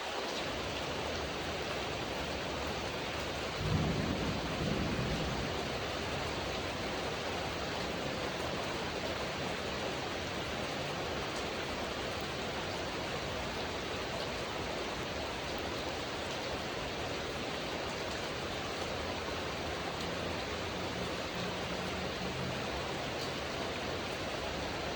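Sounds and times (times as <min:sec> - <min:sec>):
heavy rain falling: 0:00.0 - 0:24.9
thunder rumble: 0:03.5 - 0:09.4.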